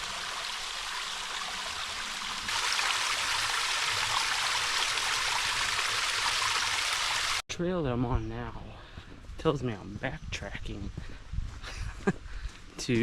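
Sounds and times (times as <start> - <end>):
stream flowing: 0.0 - 7.4.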